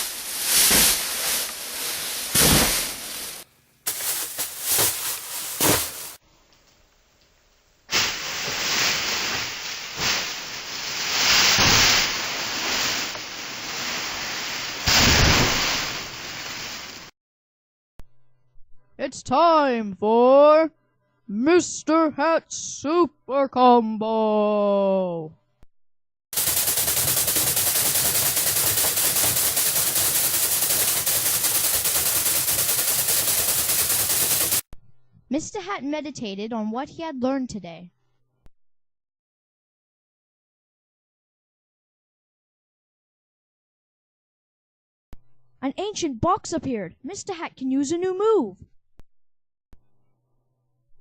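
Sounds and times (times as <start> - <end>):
loud rushing hiss: 26.4 - 34.6
rapid rattle of sharp hits: 26.4 - 34.6.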